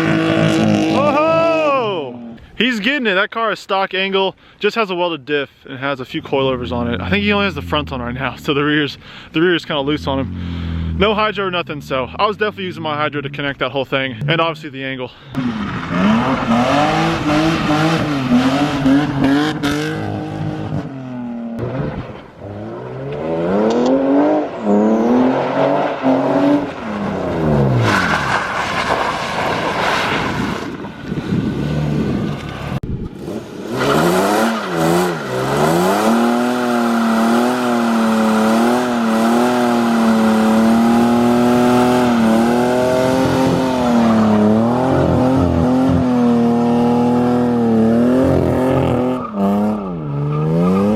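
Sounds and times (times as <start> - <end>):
car engine revving hard: 0.0 - 1.4, 9.8 - 12.2, 15.4 - 28.4, 33.2 - 50.9.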